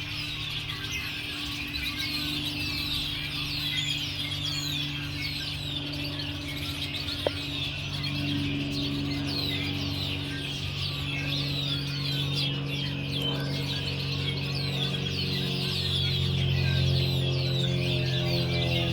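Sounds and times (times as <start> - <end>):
small birds chirping: 0.0 - 18.9
steady low hum: 0.0 - 18.9.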